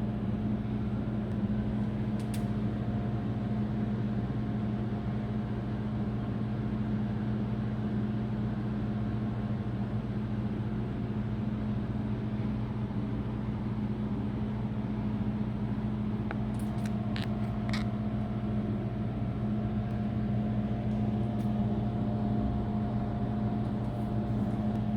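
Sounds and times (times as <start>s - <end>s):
steady mechanical hum: 0.0s - 24.9s.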